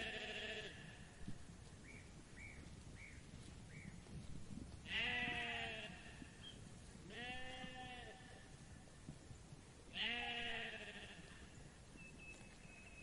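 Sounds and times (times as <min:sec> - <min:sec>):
sheep bleating: 0:00.0 - 0:01.0, 0:04.8 - 0:06.3, 0:07.1 - 0:08.4, 0:09.9 - 0:11.5.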